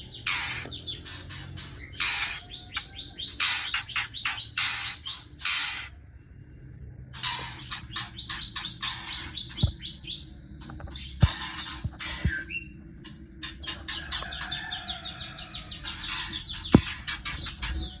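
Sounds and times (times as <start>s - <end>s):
bird chicks chirping: 0.0s - 6.0s, 7.2s - 18.0s
sharp knocks: 16.7s - 17.6s.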